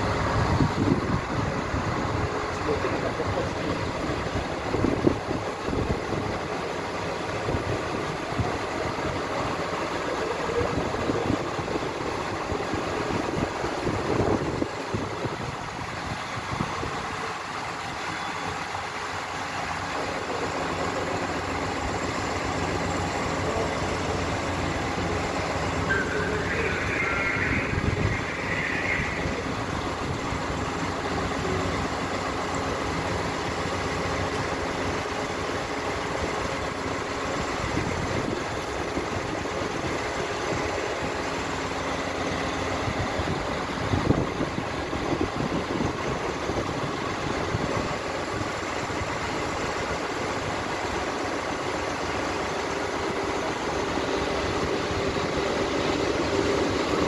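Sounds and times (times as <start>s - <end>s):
train approaching: 0.0s - 14.1s, 14.7s - 37.7s
mechanical hum and rumble: 0.0s - 57.0s.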